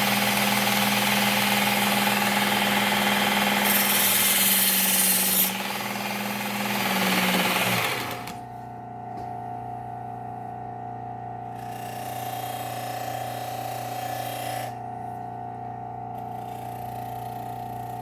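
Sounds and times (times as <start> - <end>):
belt sharpener motor running: 0.0 - 8.4, 11.5 - 14.8
blade grinding on abrasive belt: 0.0 - 8.4, 11.6 - 14.8.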